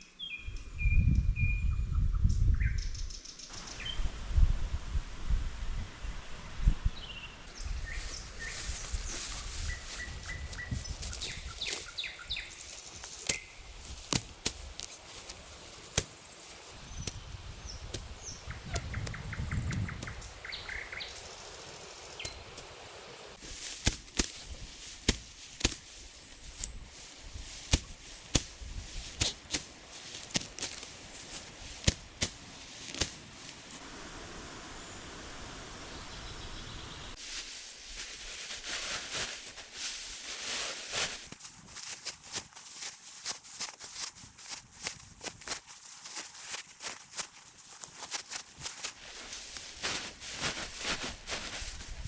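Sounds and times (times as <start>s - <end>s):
birds singing and trilling: 7.0s - 23.4s.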